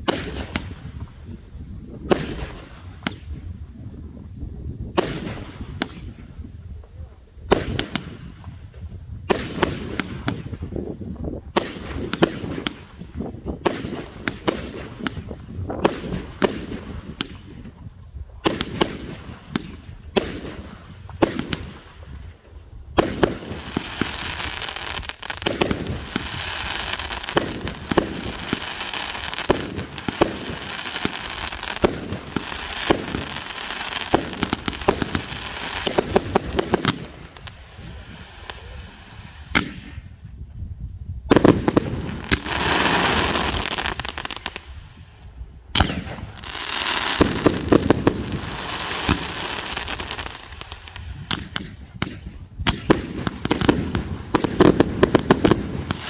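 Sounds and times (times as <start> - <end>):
fireworks crackling: 22.9 - 40.2, 41.3 - 56.0
firework bangs with echo: 23.0 - 40.1, 41.3 - 44.7, 45.7 - 56.0.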